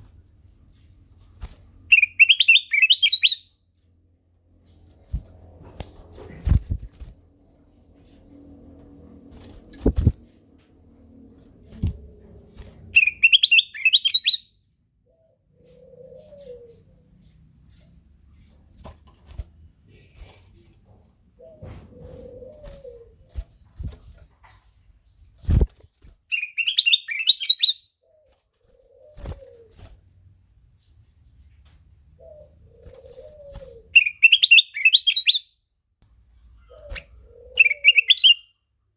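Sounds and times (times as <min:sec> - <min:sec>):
bulbul chirping: 0:01.9 - 0:03.5, 0:12.8 - 0:14.6, 0:25.5 - 0:27.9, 0:32.2 - 0:35.5, 0:36.6 - 0:38.4.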